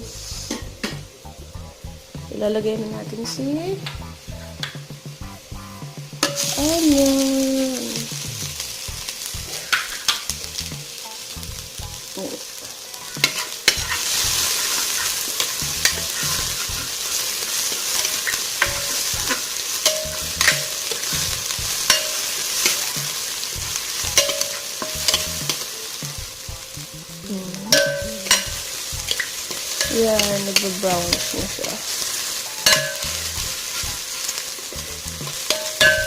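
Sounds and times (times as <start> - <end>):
garlic and onion sizzling: 0.0 - 36.0
utensil scraping a pan: 9.4 - 10.3, 13.0 - 25.7, 27.7 - 36.0.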